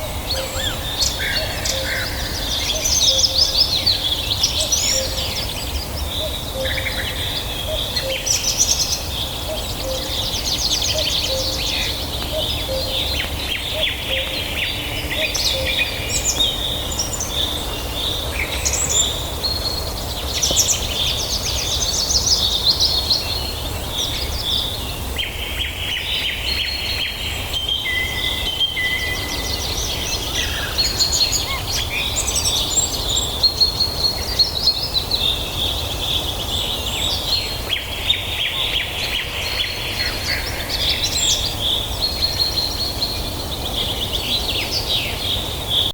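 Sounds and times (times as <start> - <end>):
songbirds chorus chirping: 0.0 - 45.9.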